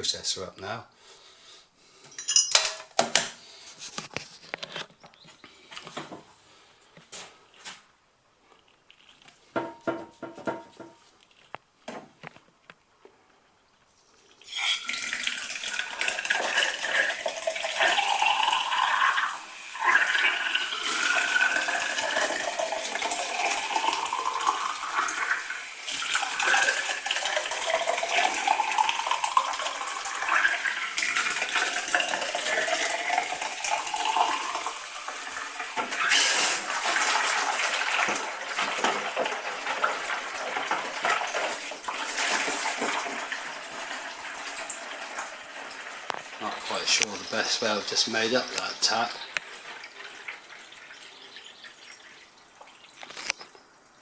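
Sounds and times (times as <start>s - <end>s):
water pouring from a tap: 14.3s - 54.0s.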